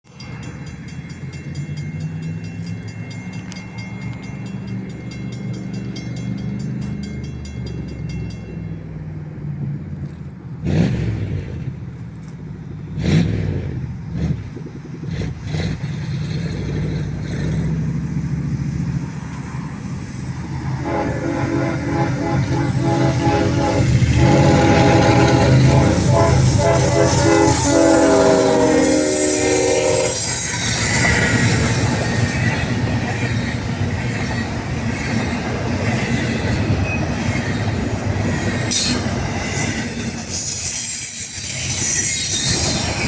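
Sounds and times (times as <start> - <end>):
diesel locomotives rumbling past: 0.0 - 43.0
locomotive air horn chord: 20.7 - 30.4.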